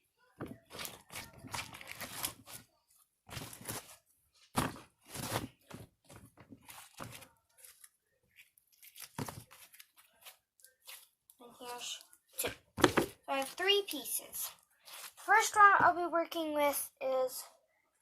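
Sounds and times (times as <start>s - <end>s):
slime tearing and crackling: 0.7s - 2.6s.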